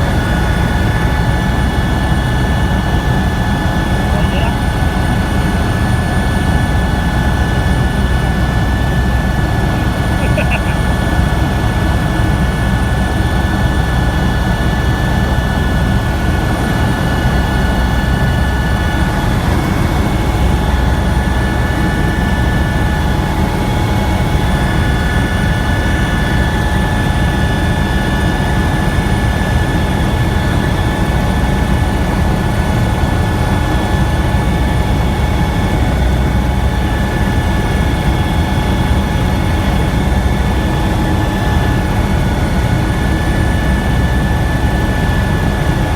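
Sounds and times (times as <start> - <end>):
high whine: 0.0 - 13.8
helicopter rotor and engine noise: 0.0 - 45.9.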